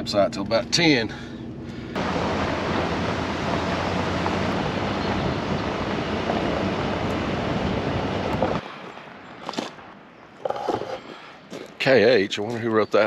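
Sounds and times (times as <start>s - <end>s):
low truck engine hum: 0.0s - 8.6s
road and wind noise: 0.0s - 13.0s.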